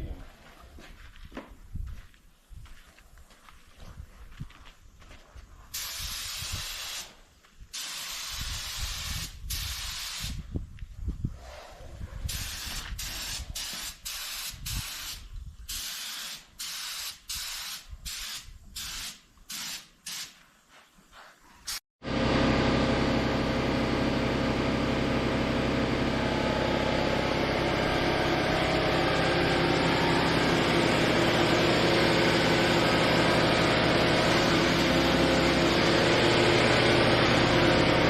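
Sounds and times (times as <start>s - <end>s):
paint spray gun hissing: 5.7s - 7.2s, 7.8s - 10.4s, 12.3s - 20.4s.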